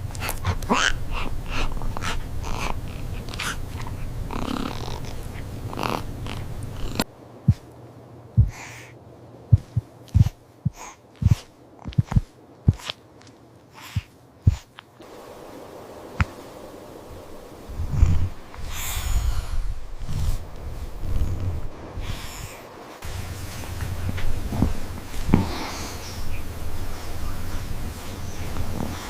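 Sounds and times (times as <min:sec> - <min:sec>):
steady low hum: 0:00.0 - 0:29.0
soft low thumps: 0:07.5 - 0:07.7, 0:08.4 - 0:08.6, 0:09.5 - 0:12.8, 0:14.0 - 0:14.7.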